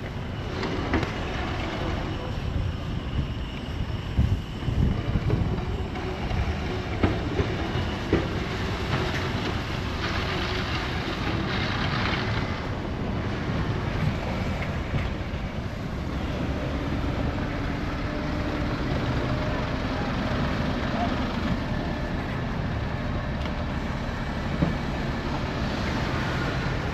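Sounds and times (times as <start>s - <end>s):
city traffic rumble: 0.0s - 26.9s
wind buffeting microphone: 0.0s - 26.9s.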